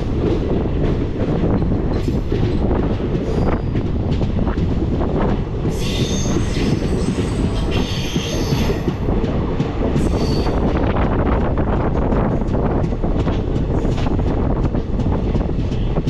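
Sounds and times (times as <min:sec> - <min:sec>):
train rumbling on rails: 0:00.0 - 0:16.0.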